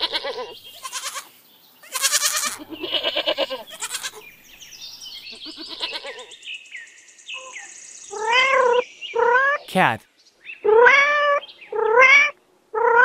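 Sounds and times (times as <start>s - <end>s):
goats bleating: 0.8s - 4.2s.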